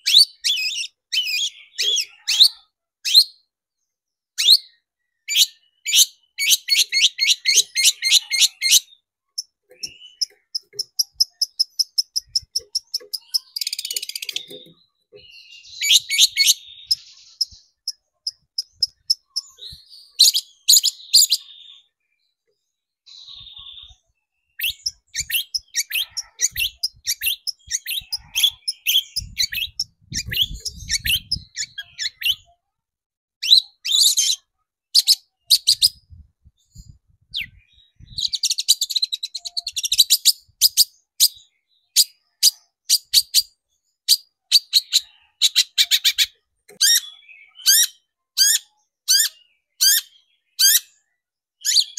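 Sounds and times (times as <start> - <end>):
shrike chattering song: 6.4 - 21.5, 24.6 - 32.5.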